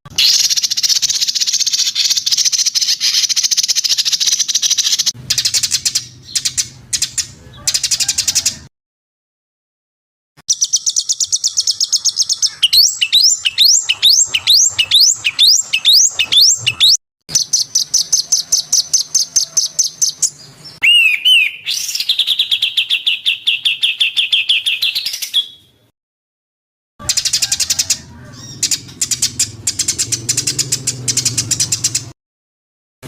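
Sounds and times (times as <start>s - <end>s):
songbird trilling: 0.2s - 8.5s, 10.5s - 25.7s
bird whistled sweeps: 20.8s - 22.5s.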